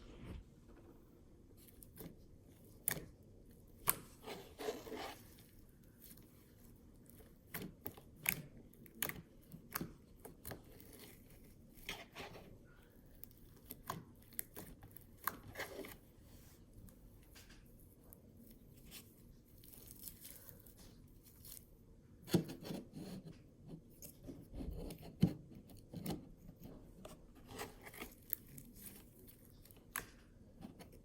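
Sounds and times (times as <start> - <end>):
squishy slime sounds: 17.8 - 21.8.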